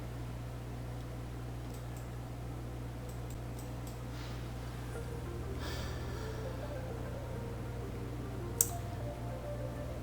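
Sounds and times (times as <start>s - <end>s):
steady low hum: 0.0s - 10.0s
faint sustained tones: 4.2s - 10.0s.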